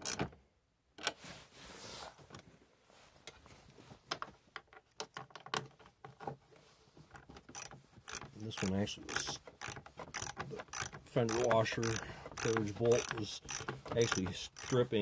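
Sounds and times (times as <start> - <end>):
socket ratchet clicking and rattling: 7.4 - 15.0.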